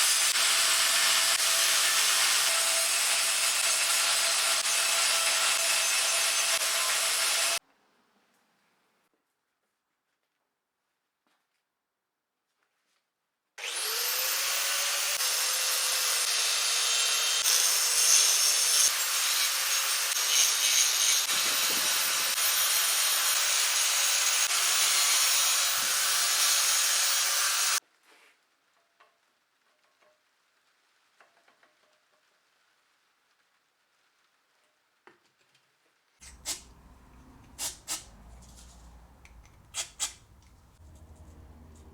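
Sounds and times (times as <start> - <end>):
power tool cutting metal: 0.0 - 7.6, 13.6 - 27.8.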